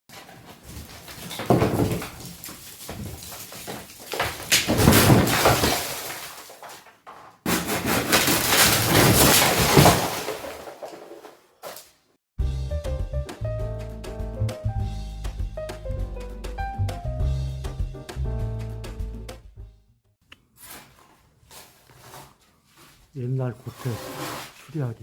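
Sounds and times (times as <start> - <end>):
debris crashing and breaking: 0.1 - 11.9
rubble falling: 0.1 - 12.0.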